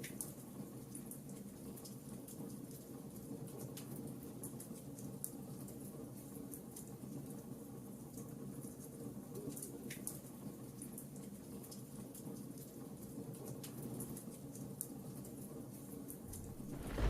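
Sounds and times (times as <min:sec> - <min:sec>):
rain: 0:00.0 - 0:17.0
wood fire crackling and popping: 0:16.3 - 0:17.0.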